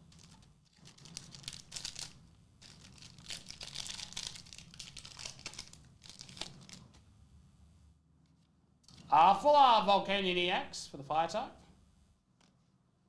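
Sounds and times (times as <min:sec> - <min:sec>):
foil wrapper crinkling and tearing: 0:00.2 - 0:07.0.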